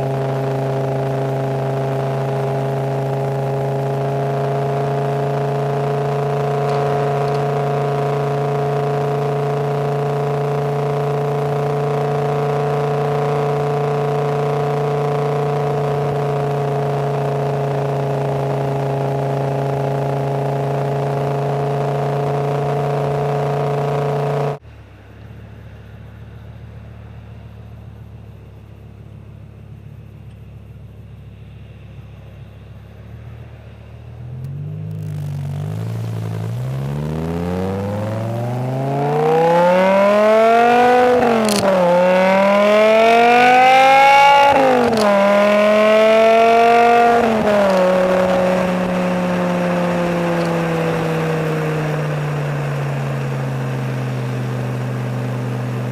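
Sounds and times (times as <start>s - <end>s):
car engine accelerating: 0.0s - 55.9s
low hum: 0.0s - 55.9s.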